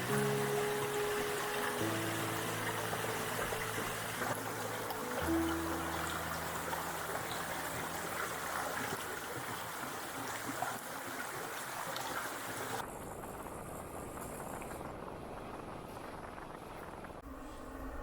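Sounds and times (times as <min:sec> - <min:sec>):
water rushing: 0:00.0 - 0:12.8.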